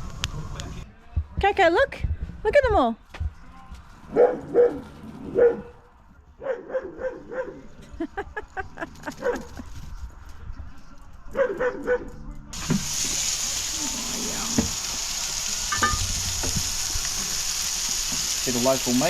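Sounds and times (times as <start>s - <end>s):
dog barking and yipping: 4.1s - 5.7s, 6.4s - 7.6s, 11.3s - 12.1s.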